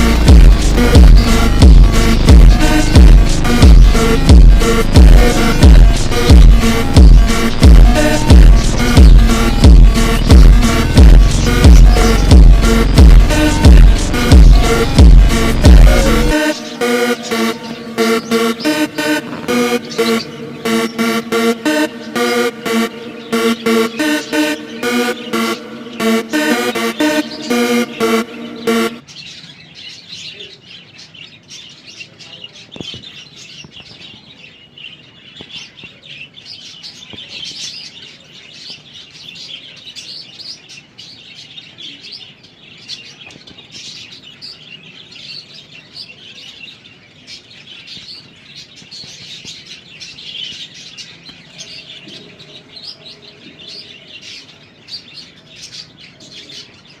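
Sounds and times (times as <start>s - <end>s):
budgerigars chirping and chattering: 0.0s - 57.0s.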